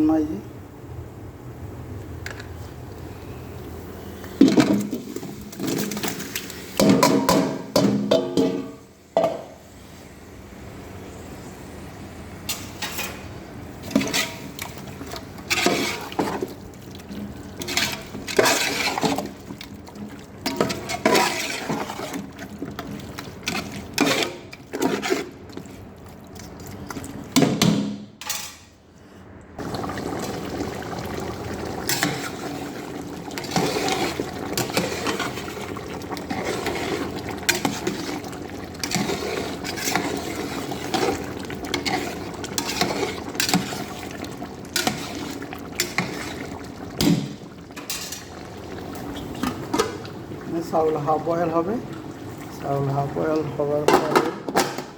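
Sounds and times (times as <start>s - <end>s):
liquid sounds: 13.7s - 27.6s, 29.6s - 54.1s
running water rushing: 29.6s - 53.9s.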